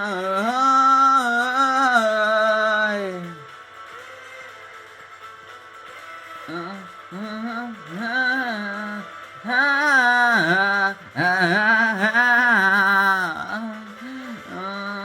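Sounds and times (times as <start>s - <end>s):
soft musical accompaniment: 0.0s - 15.0s
woman singing wordless notes: 6.5s - 15.0s.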